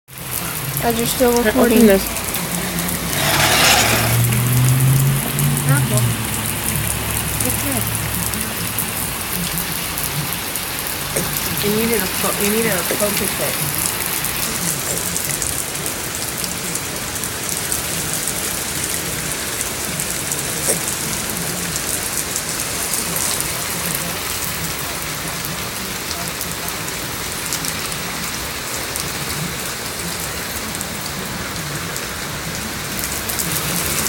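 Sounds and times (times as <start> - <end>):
rain pattering on surfaces: 0.1 - 34.0.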